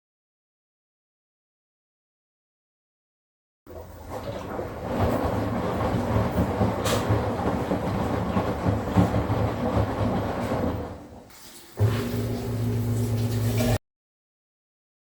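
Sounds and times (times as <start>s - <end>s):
washing machine spinning: 3.7s - 13.8s.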